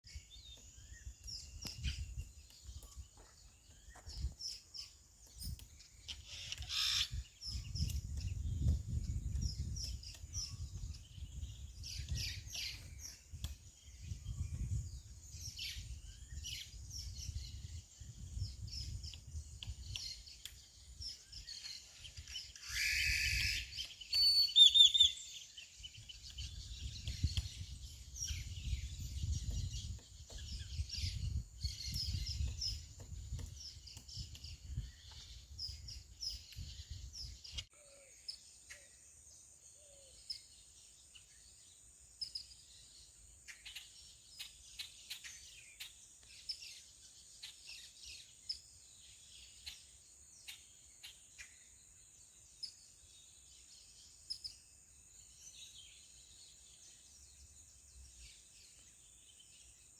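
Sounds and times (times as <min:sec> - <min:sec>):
wind rumbling on microphone: 0:00.0 - 0:23.9, 0:25.7 - 0:37.7
bird chirps: 0:00.0 - 0:59.9
woodpecker calling: 0:00.1 - 0:13.6, 0:19.2 - 0:36.7.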